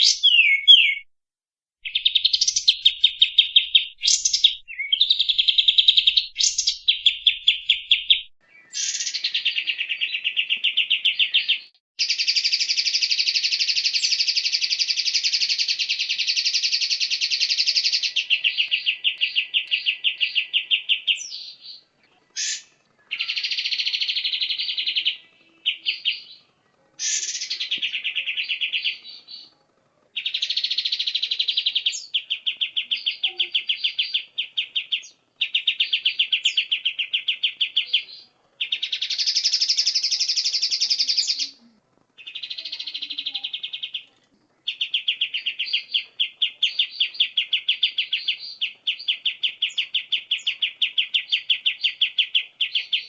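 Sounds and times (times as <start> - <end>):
songbird harsh rapid trills: 1.8 - 29.5, 30.2 - 41.6.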